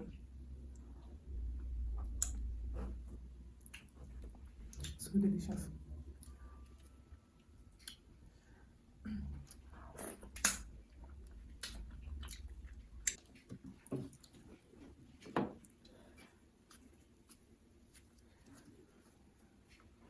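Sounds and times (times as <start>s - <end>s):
chewing and wet mouth sounds: 0.1s - 8.4s, 9.3s - 20.0s
sharp smacking clicks: 10.3s - 10.7s.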